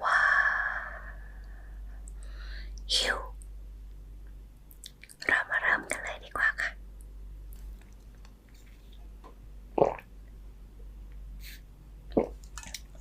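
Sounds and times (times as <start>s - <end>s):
dull mouth sounds: 9.8s - 10.1s, 12.1s - 12.6s.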